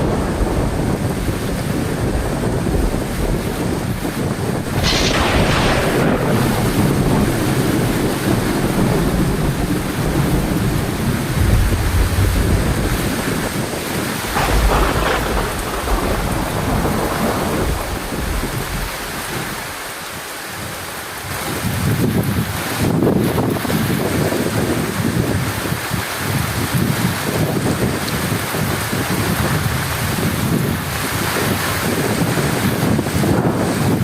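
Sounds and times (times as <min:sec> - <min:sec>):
thunderclap cracking: 0:00.0 - 0:20.0
thunder rumbling: 0:00.0 - 0:20.7
heavy rain: 0:00.0 - 0:34.0.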